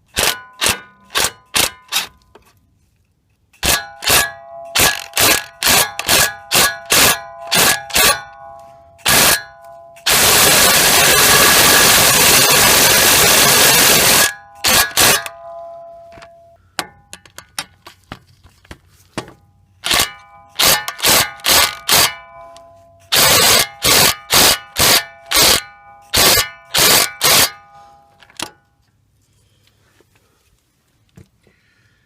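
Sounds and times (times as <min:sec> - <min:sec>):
impact wrench hammering: 0:00.1 - 0:02.1, 0:03.5 - 0:17.6, 0:19.2 - 0:27.8
metal ringing: 0:03.6 - 0:17.6, 0:19.4 - 0:28.7.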